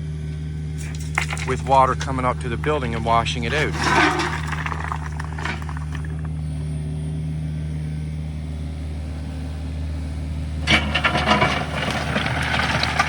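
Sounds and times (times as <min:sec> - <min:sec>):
heavy machine engine humming: 0:00.0 - 0:13.0
clattering and scraping: 0:00.8 - 0:06.4, 0:10.6 - 0:13.0.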